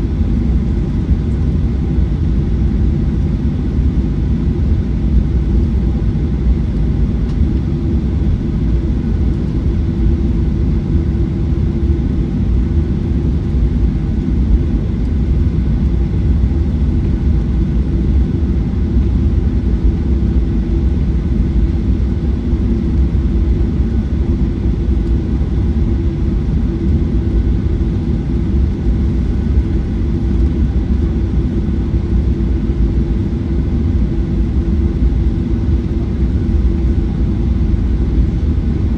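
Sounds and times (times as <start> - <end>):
jet engine hum in cabin: 0.0 - 38.9.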